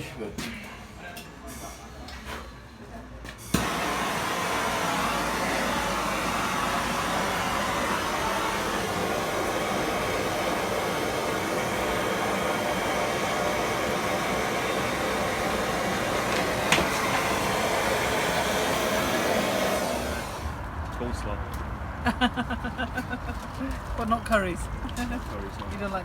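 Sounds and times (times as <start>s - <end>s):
blowtorch flame hissing: 3.6s - 20.6s.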